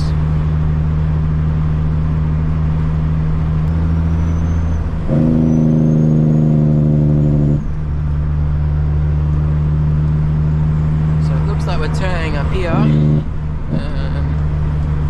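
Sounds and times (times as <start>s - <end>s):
truck diesel engine running: 0.0s - 15.0s
faint high whistle: 4.0s - 4.9s.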